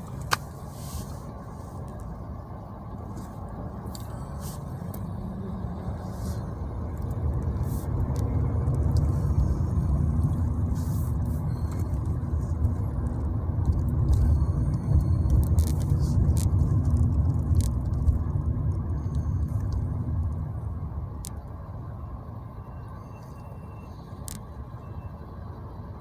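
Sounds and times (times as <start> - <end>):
car driving rumble: 0.0 - 26.0.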